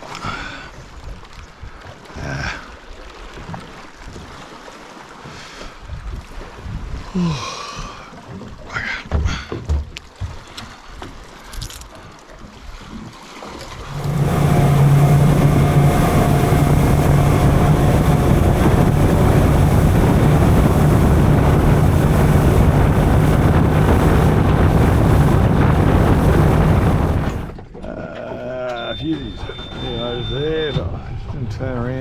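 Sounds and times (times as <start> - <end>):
outboard motor running: 13.8 - 27.6
wind on microphone: 13.8 - 27.6.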